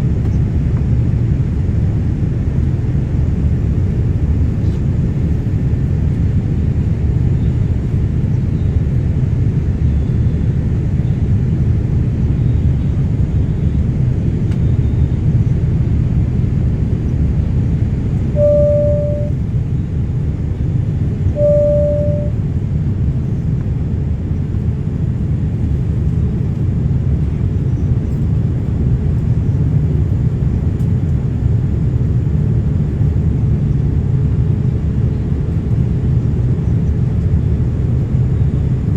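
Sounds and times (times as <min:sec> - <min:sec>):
jet engine cabin rumble: 0:00.0 - 0:38.9
short cabin tones: 0:18.3 - 0:19.4, 0:21.2 - 0:22.5.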